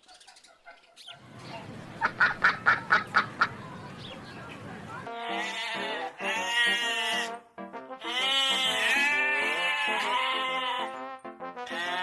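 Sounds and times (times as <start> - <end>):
duck quacking rapidly: 2.0 - 3.6, 5.2 - 7.4, 8.0 - 11.0, 11.6 - 12.0
long wavering bleat: 5.1 - 7.4, 8.0 - 11.0, 11.6 - 12.0.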